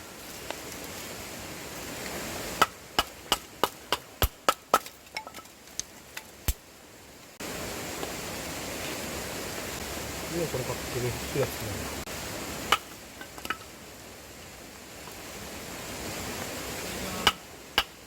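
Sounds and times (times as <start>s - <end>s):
wood being chopped: 2.6s - 5.5s, 17.2s - 18.0s.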